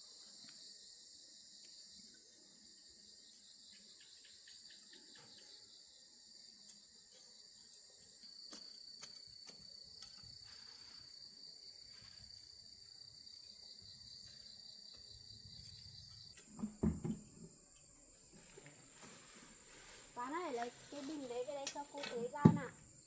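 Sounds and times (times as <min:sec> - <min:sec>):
insects trilling: 0:00.0 - 0:23.0
dull thumps: 0:16.4 - 0:17.6, 0:22.0 - 0:22.8.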